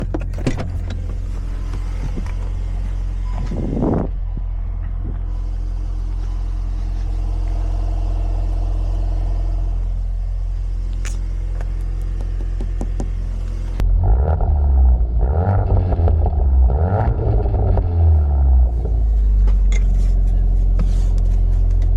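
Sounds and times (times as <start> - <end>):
car engine at low revs: 0.0 - 21.9.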